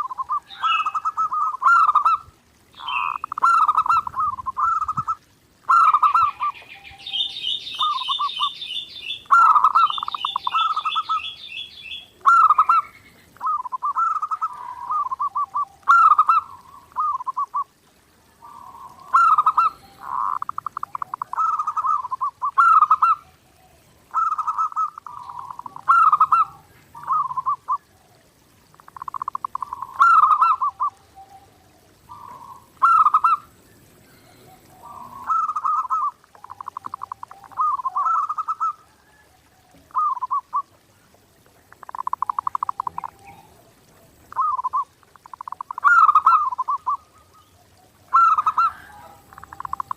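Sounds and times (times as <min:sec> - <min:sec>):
doves cooing: 0:00.0 - 0:08.5, 0:12.2 - 0:49.9
small bird chirping trill: 0:06.0 - 0:14.5.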